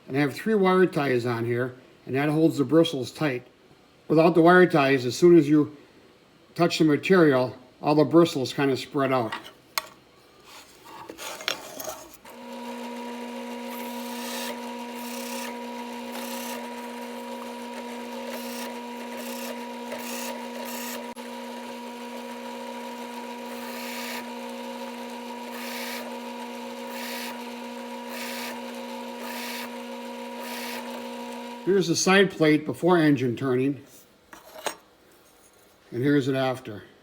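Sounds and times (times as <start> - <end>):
drill press motor running: 12.2 - 31.7.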